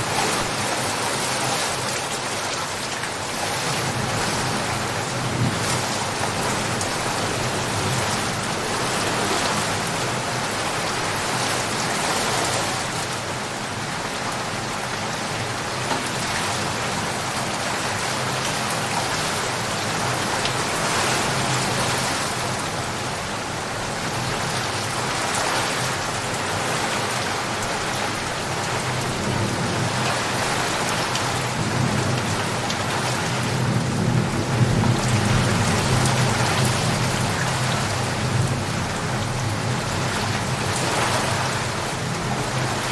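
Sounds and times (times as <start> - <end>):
heavy rain falling: 0.0 - 42.9
low rumbling thunder: 31.4 - 40.0.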